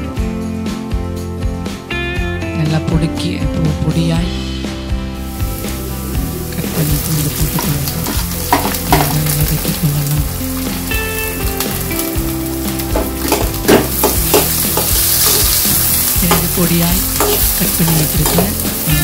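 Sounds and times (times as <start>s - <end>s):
onions sizzling in hot oil: 5.2s - 19.0s
metal ladle scraping pan: 7.5s - 9.4s, 12.8s - 18.8s.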